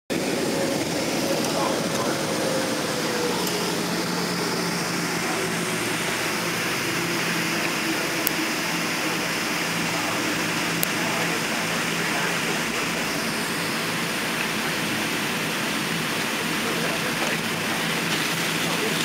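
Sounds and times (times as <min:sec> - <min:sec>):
airliner cabin engine noise: 0:00.1 - 0:19.0.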